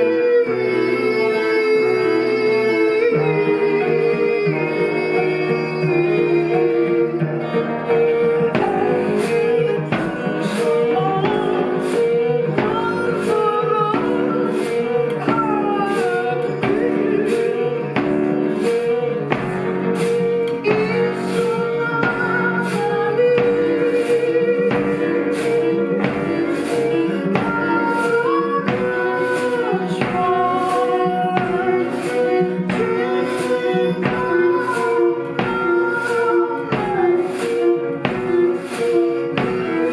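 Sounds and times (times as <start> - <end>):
live ensemble music: 0.0 - 39.9.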